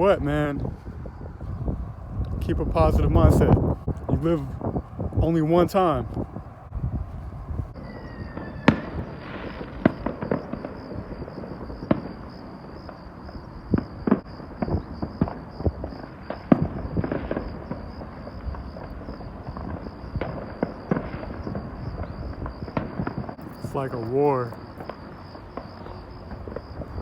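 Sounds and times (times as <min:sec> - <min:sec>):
crickets trilling: 0:00.0 - 0:27.0
fireworks bangs and pops: 0:08.3 - 0:27.0.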